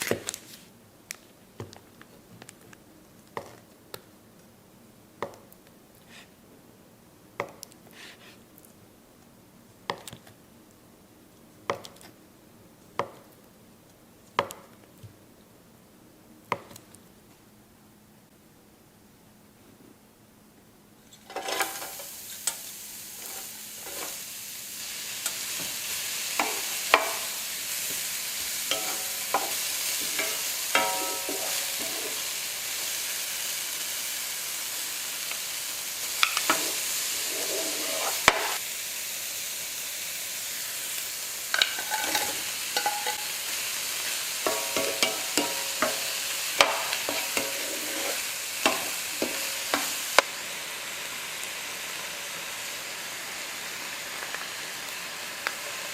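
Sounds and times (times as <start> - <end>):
food sizzling in a hot pan: 21.2 - 55.9
utensil clinking against pan: 28.7 - 32.2, 41.6 - 43.3.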